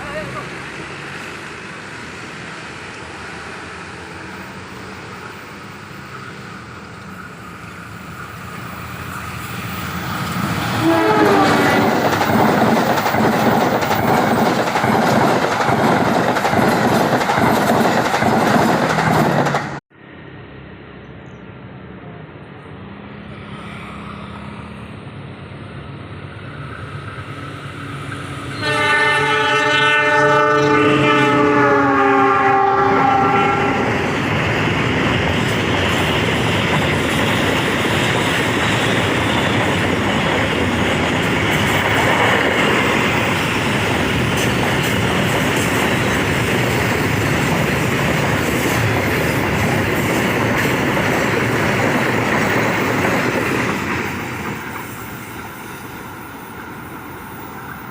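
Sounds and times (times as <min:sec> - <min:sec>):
diesel locomotive engine humming: 0:00.0 - 0:57.9
train wheels on rails: 0:00.0 - 0:57.9
train horn blast: 0:10.8 - 0:11.9, 0:28.5 - 0:34.0.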